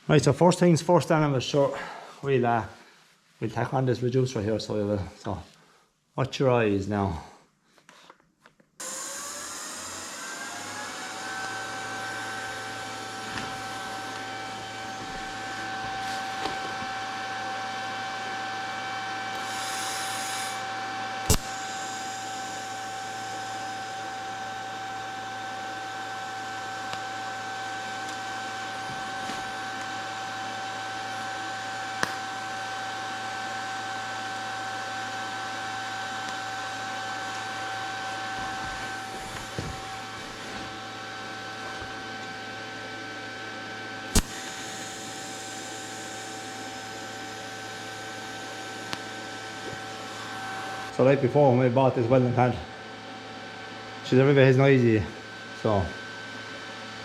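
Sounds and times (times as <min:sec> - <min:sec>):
welding machine whine and hum: 0:08.8 - 0:57.0
sharp clicks: 0:21.3 - 0:21.5.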